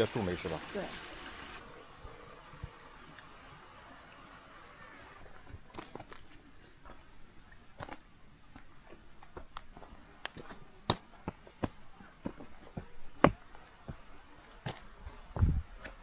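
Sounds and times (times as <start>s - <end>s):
footsteps on forest trail: 5.2s - 16.0s.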